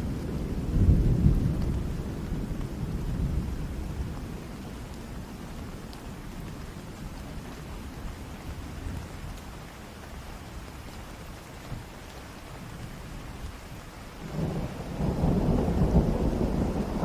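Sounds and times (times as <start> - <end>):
deep roll of thunder: 0.0 - 4.4, 14.2 - 17.0
steady rain falling: 0.0 - 17.0.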